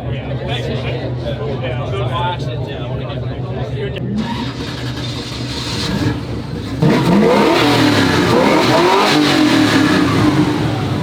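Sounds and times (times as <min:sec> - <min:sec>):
car engines revving: 0:04.0 - 0:11.0.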